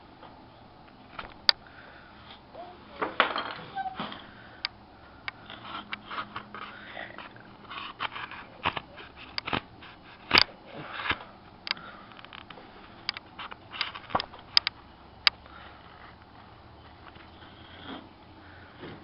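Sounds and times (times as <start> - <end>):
knife scraping wood: 5.4 - 11.3
knife cutting wood with cracks: 5.6 - 11.3.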